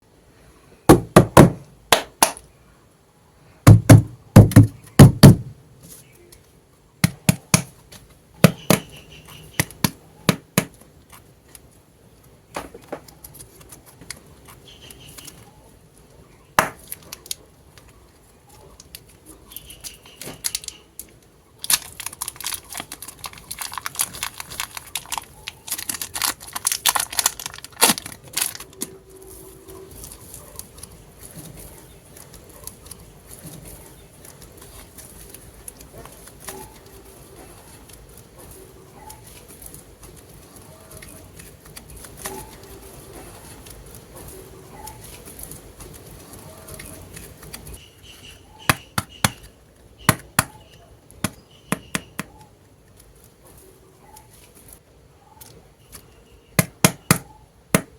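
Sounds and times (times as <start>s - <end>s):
packaging crinkling: 20.3s - 36.9s.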